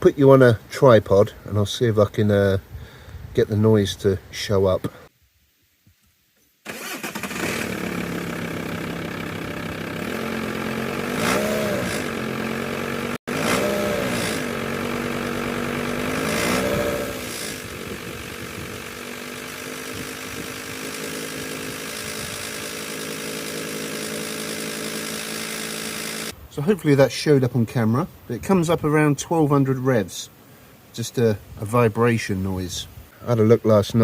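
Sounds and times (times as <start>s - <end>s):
diesel engine starting and idling: 6.7s - 26.3s
engine revving: 6.7s - 26.4s.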